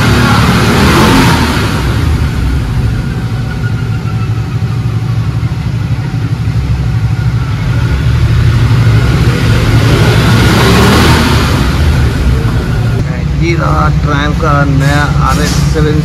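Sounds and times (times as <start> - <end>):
motorcycle engine revving on dyno: 0.0 - 3.2, 7.6 - 13.0.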